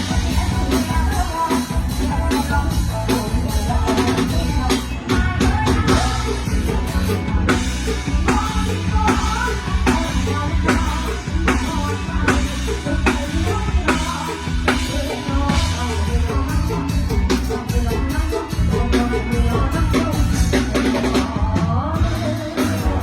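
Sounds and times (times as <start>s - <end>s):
drum kit beat: 0.0s - 23.0s
live band music: 0.0s - 23.0s.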